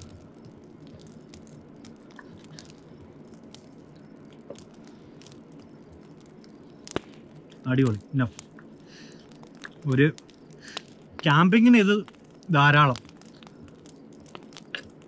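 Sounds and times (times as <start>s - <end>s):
wood fire crackling: 0.0s - 15.0s
person chewing: 8.6s - 9.8s.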